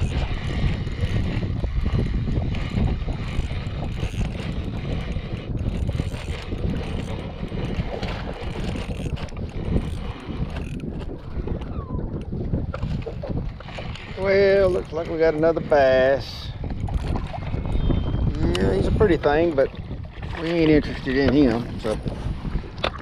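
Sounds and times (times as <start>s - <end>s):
fishing reel ratcheting clicks: 0.0s - 12.3s, 16.8s - 17.2s
wind buffeting microphone: 0.0s - 23.0s.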